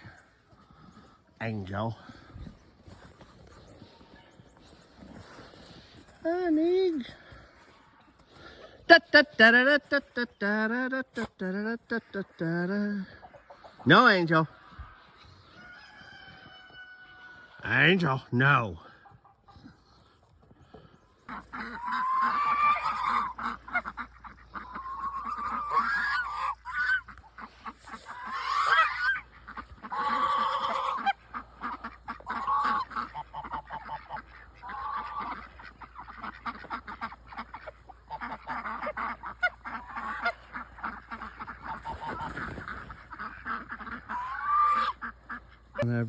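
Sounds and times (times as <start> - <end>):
geese honking: 0.0 - 46.0.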